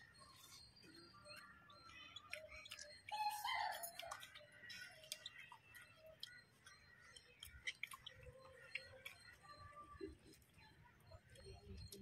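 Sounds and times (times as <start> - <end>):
chewing and lip smacking: 0.2 - 12.0.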